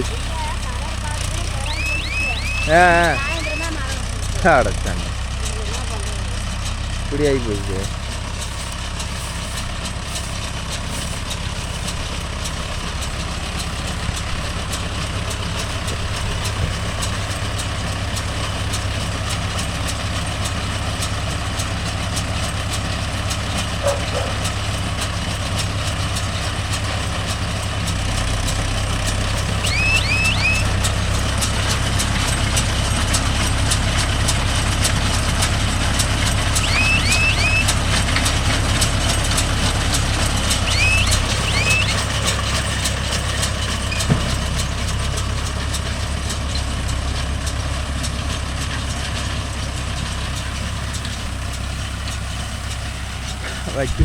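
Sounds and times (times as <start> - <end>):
fast even machinery ticking: 0.0 - 23.5, 27.8 - 44.0
tractor engine running under load: 0.0 - 54.0
quick high rising chirps: 1.7 - 3.6, 29.6 - 30.8, 36.5 - 37.8, 40.6 - 42.1.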